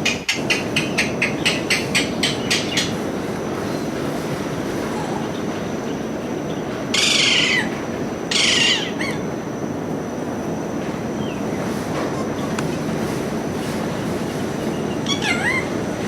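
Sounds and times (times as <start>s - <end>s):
parrot squawks: 6.9s - 7.7s, 8.3s - 9.2s, 15.0s - 15.7s.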